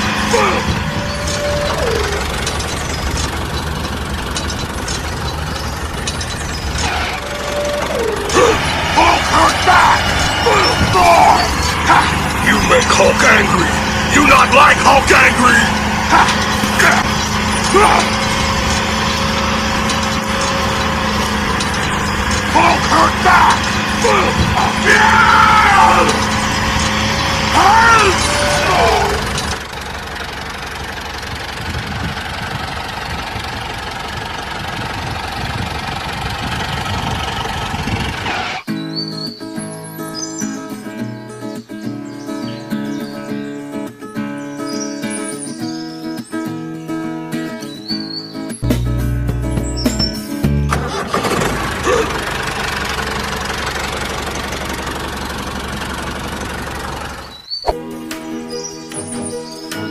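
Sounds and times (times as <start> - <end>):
tractor engine running: 0.0 - 41.4, 46.8 - 59.9.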